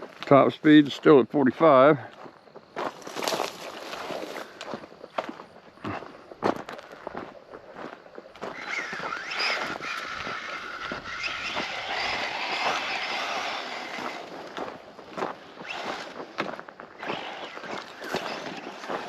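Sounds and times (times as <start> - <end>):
electric motor whining: 8.4 - 19.0.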